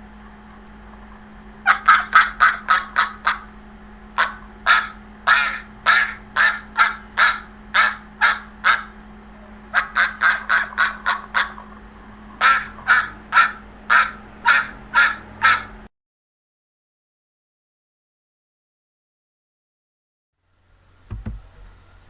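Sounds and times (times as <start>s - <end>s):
poultry calling: 0.0s - 15.9s.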